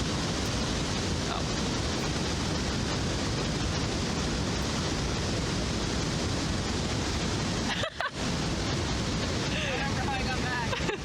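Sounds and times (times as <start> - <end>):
water rushing over a dam: 0.0 - 11.0.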